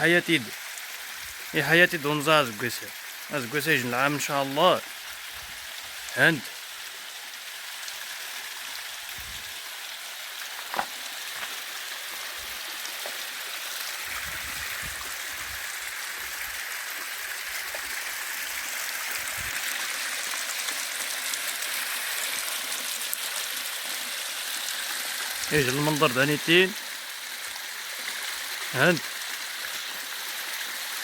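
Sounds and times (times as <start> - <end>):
mountain stream running water: 0.0 - 31.0
wind rumble on microphone: 9.2 - 9.5, 14.1 - 15.6.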